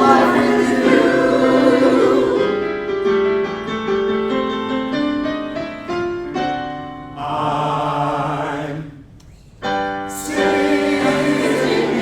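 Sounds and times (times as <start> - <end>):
voices singing a held chord: 0.0 - 2.8, 7.2 - 9.0, 10.1 - 12.0
piano interlude: 0.0 - 7.8, 9.6 - 12.0.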